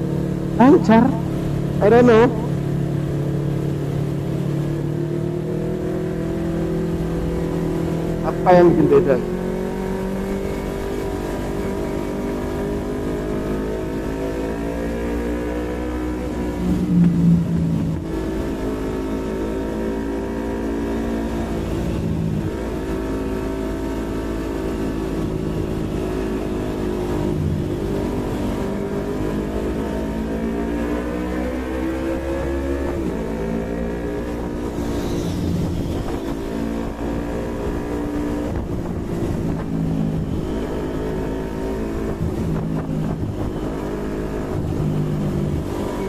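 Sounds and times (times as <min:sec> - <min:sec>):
motorcycle engine accelerating: 0:00.0 - 0:46.0
wind rumble: 0:34.3 - 0:40.7.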